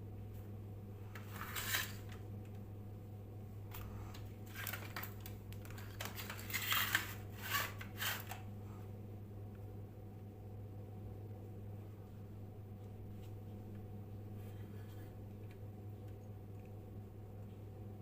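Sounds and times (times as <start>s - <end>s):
low electrical hum: 0.0s - 18.0s
small objects scraping and clicking: 1.1s - 2.2s, 4.5s - 8.4s.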